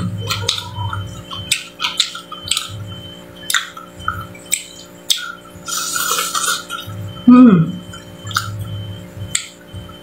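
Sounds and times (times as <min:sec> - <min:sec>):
wet crackly chewing: 0:00.0 - 0:07.2, 0:07.8 - 0:10.0
person humming: 0:07.2 - 0:07.8.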